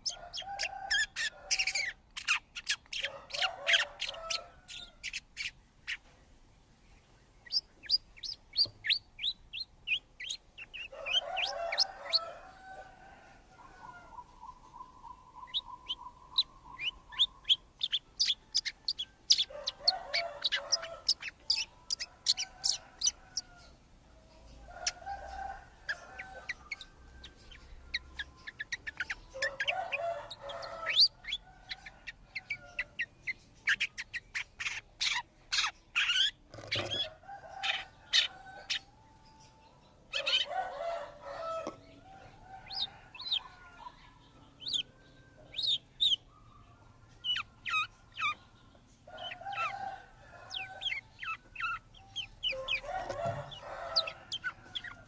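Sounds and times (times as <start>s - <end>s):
chicken clucking: 0.0s - 6.2s, 7.5s - 38.9s, 40.1s - 55.0s
small birds chirping: 0.0s - 55.0s.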